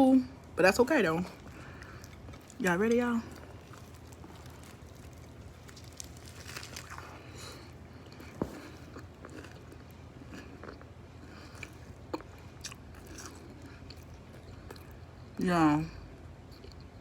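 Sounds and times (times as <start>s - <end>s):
biting and chewing food: 1.2s - 15.3s
sharp crunches: 3.5s - 9.6s.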